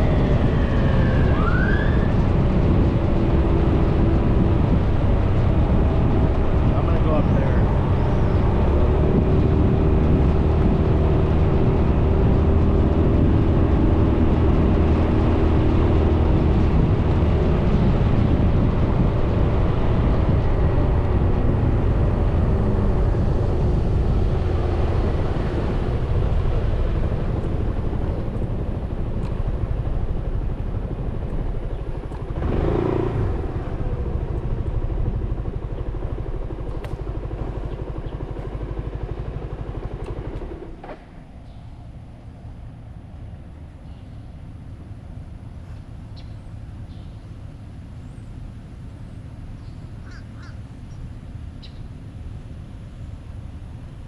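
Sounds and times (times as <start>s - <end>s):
road noise: 0.0s - 54.0s
scooter engine running: 2.2s - 43.7s.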